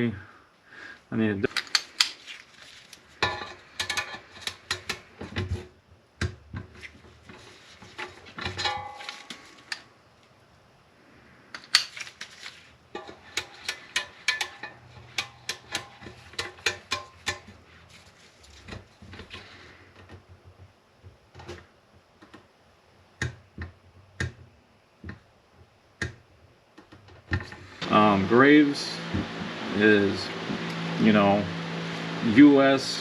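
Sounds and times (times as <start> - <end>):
hand tools clicking on metal: 3.2 - 5.1, 13.0 - 17.6.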